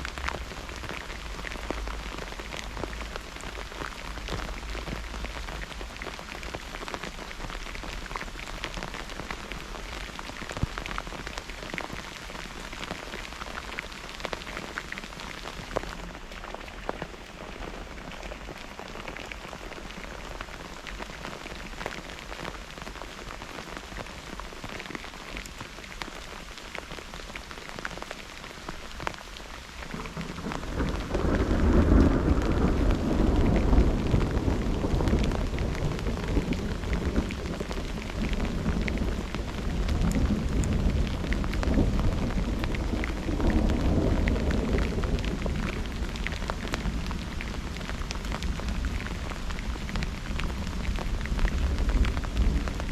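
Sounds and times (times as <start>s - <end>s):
steady rain falling: 0.0s - 52.9s
deep roll of thunder: 29.9s - 47.2s.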